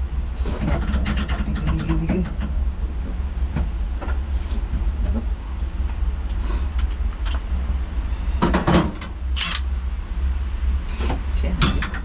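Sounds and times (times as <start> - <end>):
steady low rumble: 0.0 - 12.0
knocks and rattles: 0.6 - 2.6
tools clicking and knocking: 9.0 - 9.7.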